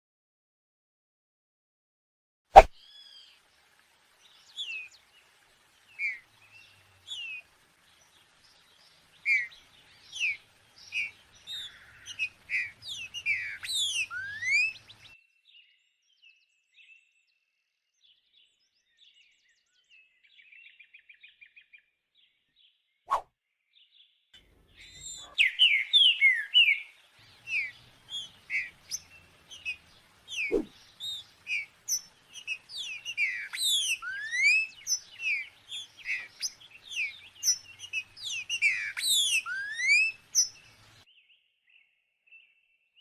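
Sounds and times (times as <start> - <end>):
songbird whistling: 9.2 - 15.1, 24.8 - 40.8.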